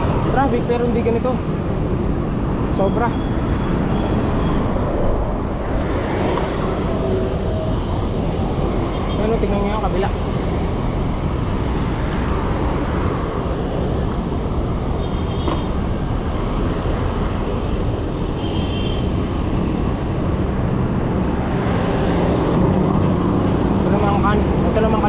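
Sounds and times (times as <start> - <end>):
road traffic noise: 0.0 - 25.0
wind on microphone: 12.3 - 23.8.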